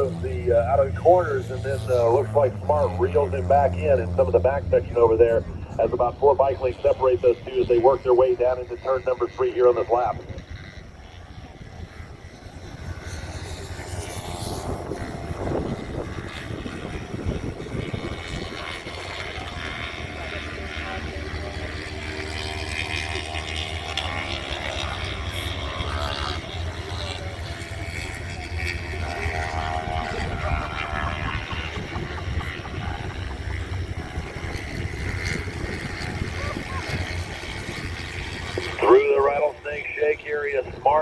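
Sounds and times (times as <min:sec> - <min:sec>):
distant racing motorcycle engines: 0:00.0 - 0:41.0.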